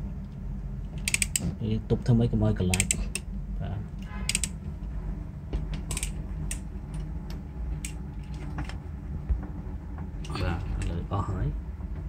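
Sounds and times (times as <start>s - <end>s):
steady low hum: 0.0s - 12.0s
metal tool clicks and creaks: 1.0s - 1.5s, 5.9s - 6.6s.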